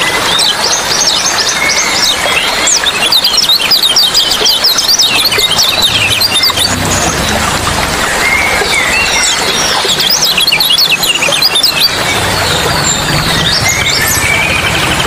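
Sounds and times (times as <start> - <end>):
flowing water: 0.0 - 15.0
small birds chirping: 0.0 - 15.0.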